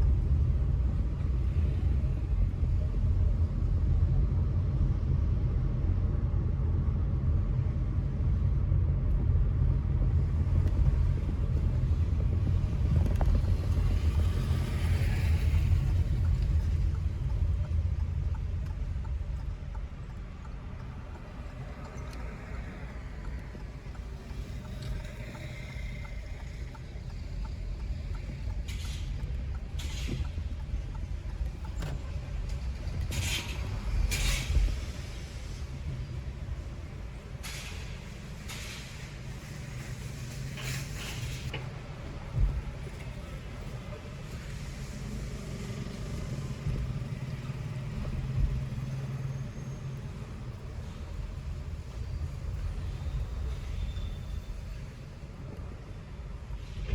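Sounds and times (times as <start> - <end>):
car road and engine rumble: 0.0 - 56.9
passing vehicles whooshing: 7.6 - 56.9
faint regular ticking: 10.6 - 33.2.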